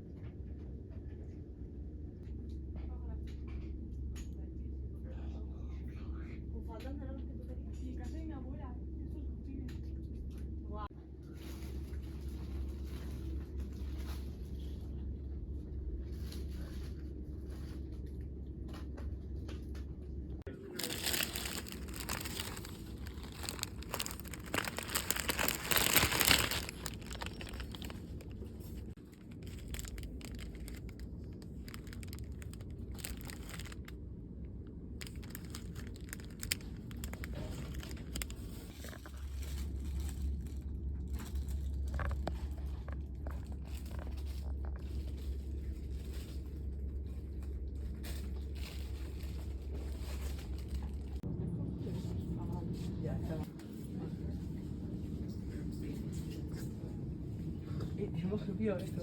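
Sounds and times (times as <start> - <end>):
steady low hum: 0.0 - 59.0
paper or plastic crinkling: 20.5 - 34.0, 35.0 - 46.4, 48.0 - 51.2.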